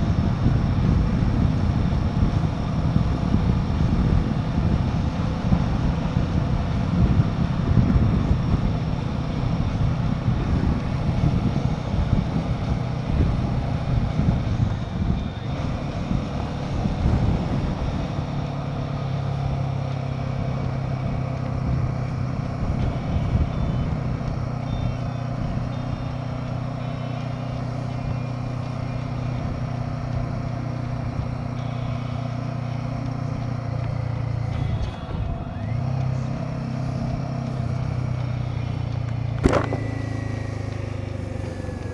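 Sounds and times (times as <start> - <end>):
wind rumble on microphone: 0.0 - 26.1
motorcycle engine cruising: 0.0 - 41.9.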